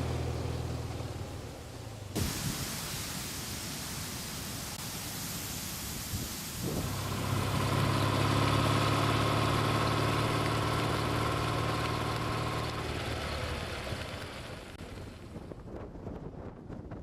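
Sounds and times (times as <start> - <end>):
vehicle engine humming: 0.0 - 5.0, 6.6 - 15.7
wind noise on microphone: 5.9 - 7.2, 14.8 - 17.0.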